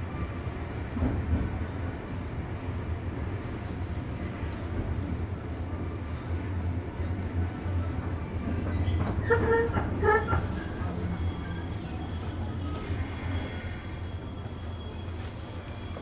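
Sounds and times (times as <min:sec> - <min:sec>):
electric train rumbling: 0:00.0 - 0:16.0
high wheel squeal: 0:08.8 - 0:16.0.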